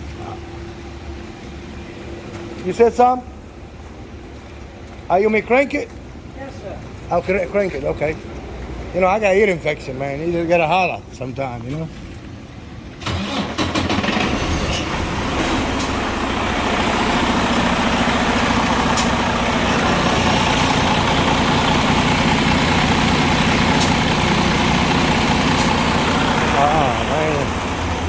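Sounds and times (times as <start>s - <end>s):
diesel truck engine starting and idling: 12.2s - 28.0s.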